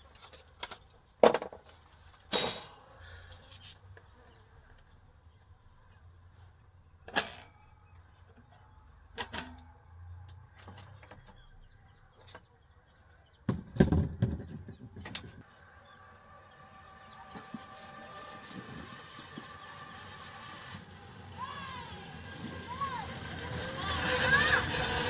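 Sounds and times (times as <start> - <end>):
hard objects knocking and clattering: 13.5 - 15.4.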